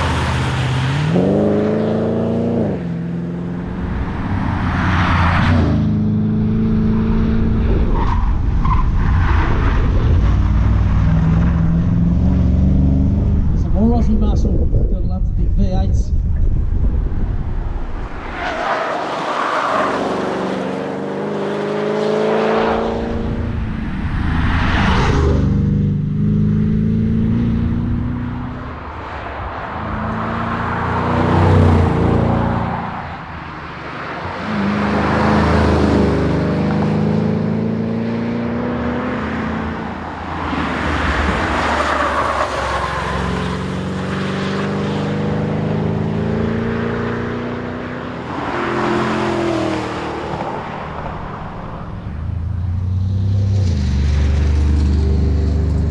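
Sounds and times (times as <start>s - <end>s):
car engine revving: 19.3s - 55.9s.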